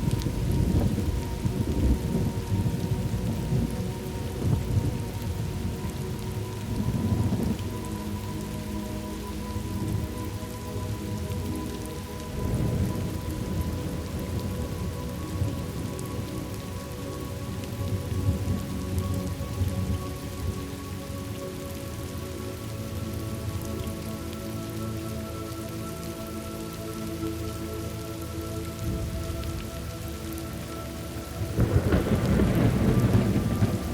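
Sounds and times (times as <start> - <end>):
low rolls of thunder: 0.0 - 7.6, 31.4 - 33.9
soft ambient tones: 0.0 - 33.9
steady rain falling: 0.0 - 33.9.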